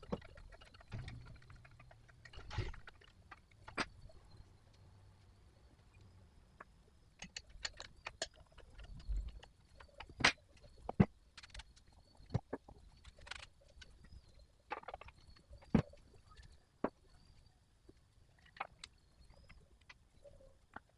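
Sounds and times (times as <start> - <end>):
hard objects clicking and knocking: 0.0 - 4.0, 7.2 - 13.5.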